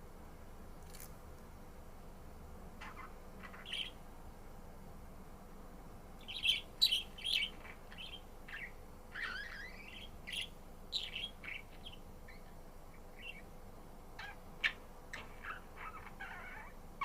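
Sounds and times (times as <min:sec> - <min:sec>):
budgerigar chirping: 0:02.8 - 0:04.0, 0:06.2 - 0:12.5, 0:13.2 - 0:13.5, 0:14.2 - 0:16.8.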